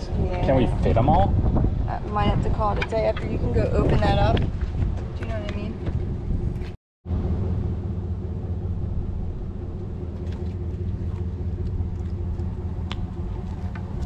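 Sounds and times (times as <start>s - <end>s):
engine idling: 5.0s - 14.0s.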